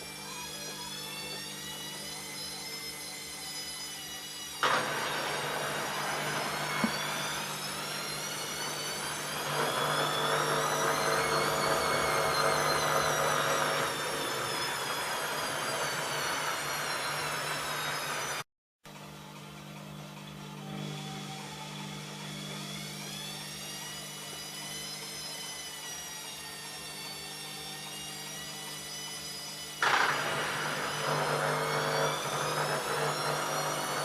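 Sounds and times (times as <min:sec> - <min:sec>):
washing machine motor and drum: 0:04.6 - 0:18.4, 0:29.8 - 0:34.0.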